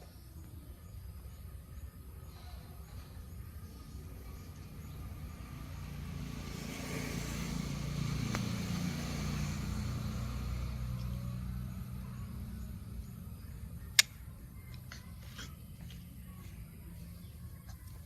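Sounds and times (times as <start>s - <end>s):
vehicle engine passing by: 2.2s - 14.0s
sharp click: 13.9s - 14.8s.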